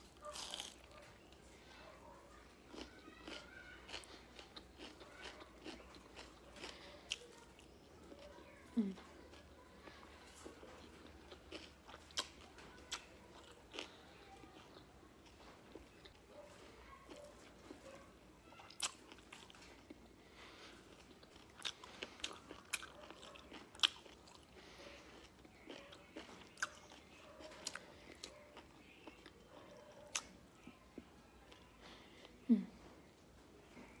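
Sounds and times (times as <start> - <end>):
chewing food: 0.0 - 32.4.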